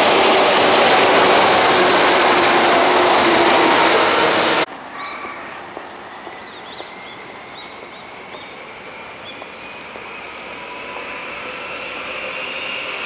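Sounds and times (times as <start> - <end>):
faint high train whine: 0.0 - 13.0
small birds chirping: 6.2 - 8.6.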